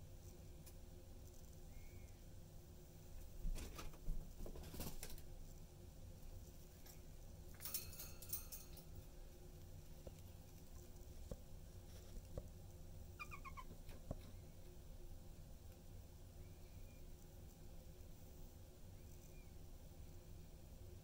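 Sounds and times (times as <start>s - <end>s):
budgerigars rustling and clicking: 3.2s - 14.8s
budgerigars chirping: 13.2s - 13.7s.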